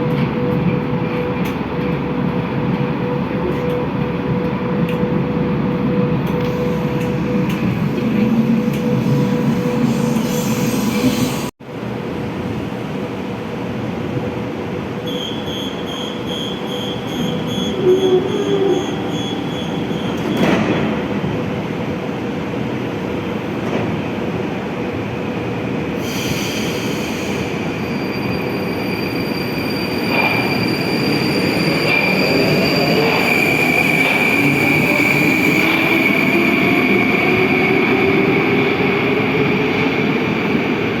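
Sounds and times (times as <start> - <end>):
train wheels squealing: 8.5 - 11.5, 15.0 - 20.6, 26.0 - 40.3.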